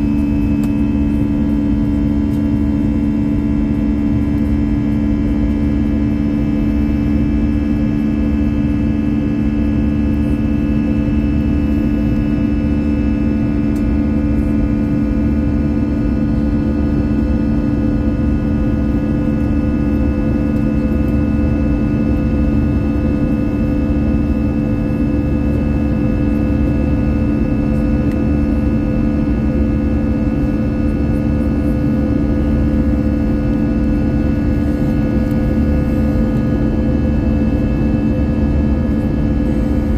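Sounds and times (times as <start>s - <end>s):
jet engines droning: 0.0s - 39.9s.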